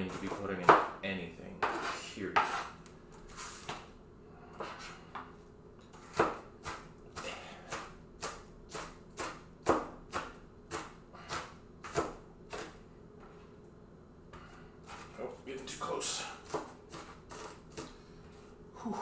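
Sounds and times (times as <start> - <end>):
knife chopping on cutting board: 0.0 - 1.0, 1.6 - 2.7, 5.9 - 12.8, 16.4 - 17.9.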